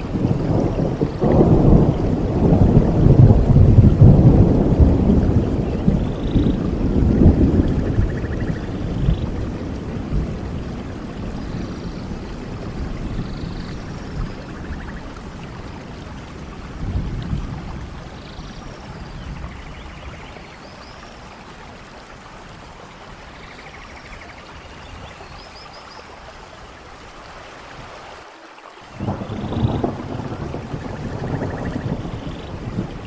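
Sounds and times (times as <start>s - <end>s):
low thunder rumbling: 0.0s - 20.4s, 29.0s - 33.0s
heavy rain: 0.0s - 33.0s.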